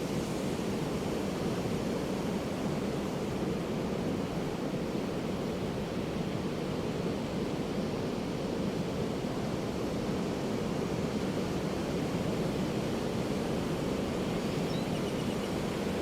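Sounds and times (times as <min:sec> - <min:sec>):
ocean surf on a beach: 0:00.0 - 0:16.0.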